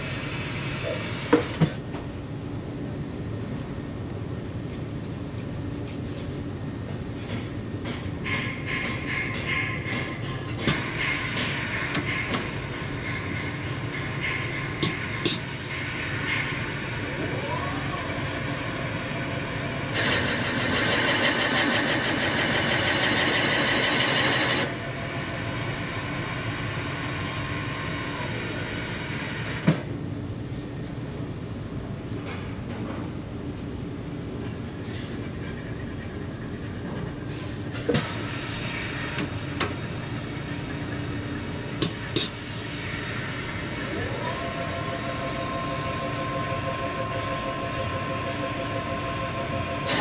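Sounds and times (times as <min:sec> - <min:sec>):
machinery humming: 0:00.0 - 0:32.4, 0:33.2 - 0:50.0
harsh machining noise: 0:11.0 - 0:29.7, 0:41.8 - 0:50.0.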